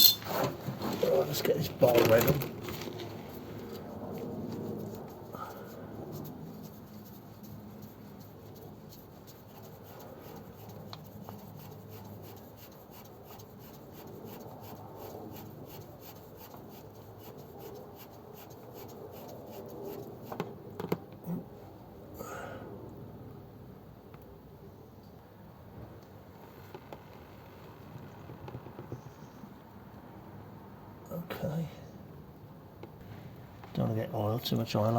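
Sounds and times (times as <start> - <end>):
oil filter rubbing and scraping: 0.0 - 20.6.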